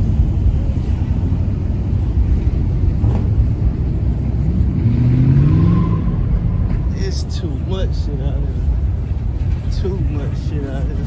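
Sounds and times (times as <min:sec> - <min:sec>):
car engine revving: 0:02.0 - 0:08.7.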